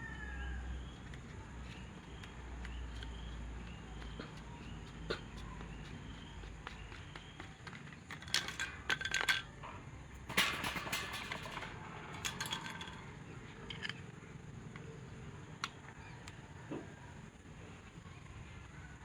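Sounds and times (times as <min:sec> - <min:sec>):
metal tools clinking together: 0:08.1 - 0:09.5, 0:10.2 - 0:14.0.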